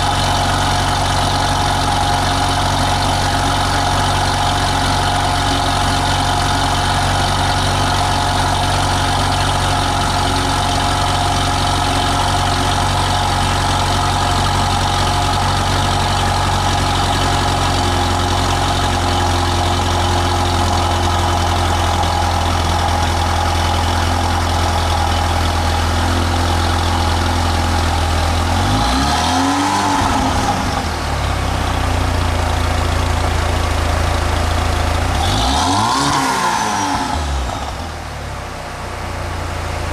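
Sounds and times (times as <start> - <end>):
car engine idling: 0.0 - 39.9
engine revving: 11.0 - 31.8, 34.9 - 38.0.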